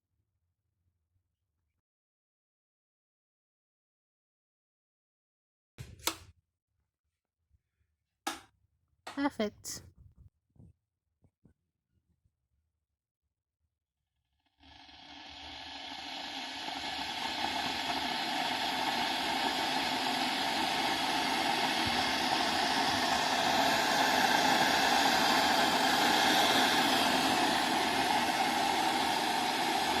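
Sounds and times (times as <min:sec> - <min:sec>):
electric kettle heating water: 0:14.6 - 0:30.0.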